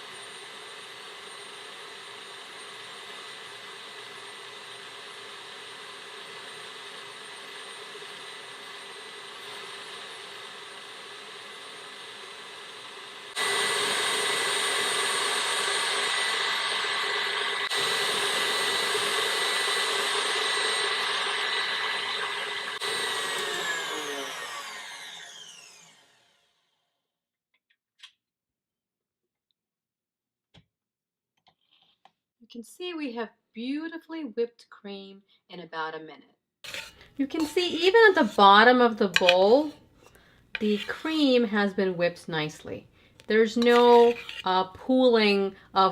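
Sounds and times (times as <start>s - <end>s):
stand mixer motor whining: 0.0s - 26.5s.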